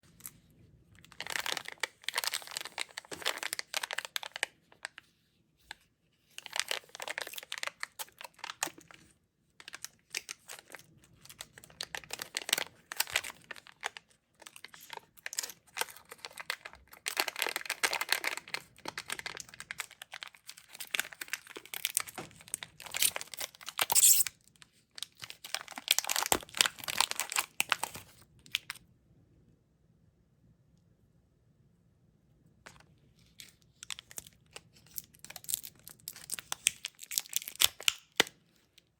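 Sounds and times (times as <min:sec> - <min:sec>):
plastic packaging crinkling: 0:01.0 - 0:05.0, 0:06.3 - 0:24.3, 0:25.0 - 0:28.8, 0:33.3 - 0:38.4
plastic packaging tearing: 0:06.4 - 0:08.9, 0:11.6 - 0:24.4, 0:25.0 - 0:28.1, 0:33.8 - 0:38.3.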